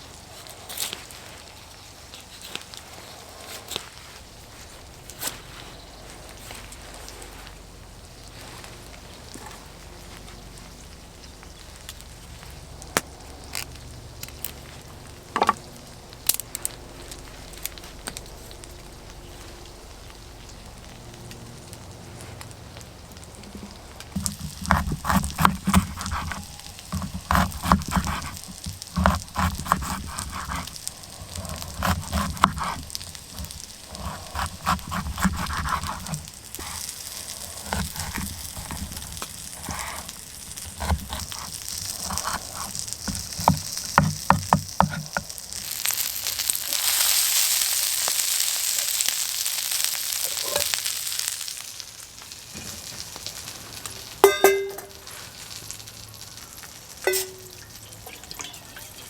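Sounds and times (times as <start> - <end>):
food sizzling in a pan: 14.7 - 59.0
short ringing clink: 54.2 - 55.0, 57.1 - 57.6.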